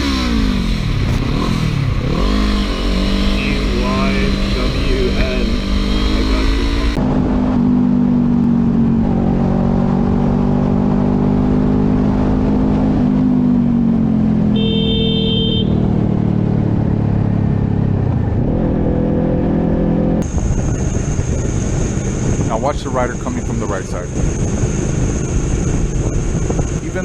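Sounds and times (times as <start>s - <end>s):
motorcycle engine running: 0.0s - 27.0s
road and wind noise: 0.0s - 27.0s.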